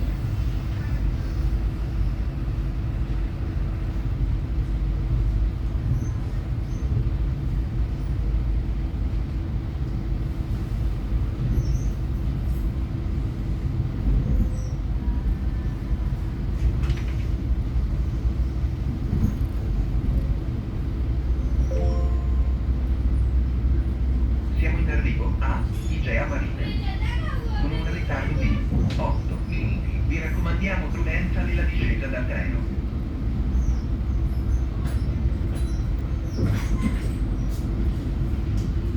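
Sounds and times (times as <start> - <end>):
train rumble inside carriage: 0.0 - 38.9
faint short tones: 21.6 - 23.0.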